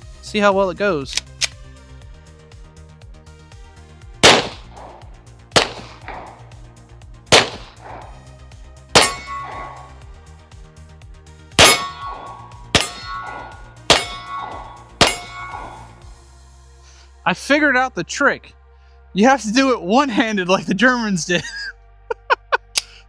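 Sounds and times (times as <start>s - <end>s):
pistol shots: 4.2s - 6.6s, 7.3s - 8.2s, 9.0s - 10.0s, 11.6s - 16.0s
steel target clanging: 9.0s - 10.1s, 11.6s - 16.1s.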